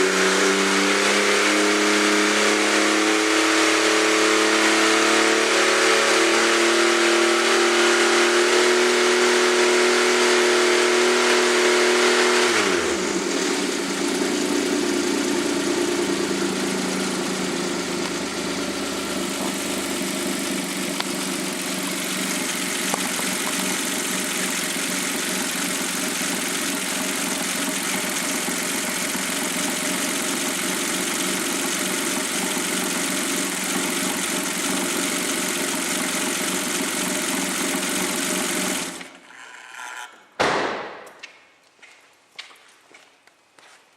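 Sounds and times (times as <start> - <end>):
car engine revving and idling: 0.0 - 39.2.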